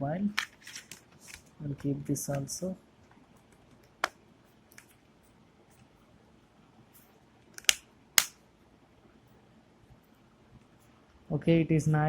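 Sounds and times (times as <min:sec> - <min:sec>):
phone cover snapping clicks: 0:07.6 - 0:08.4.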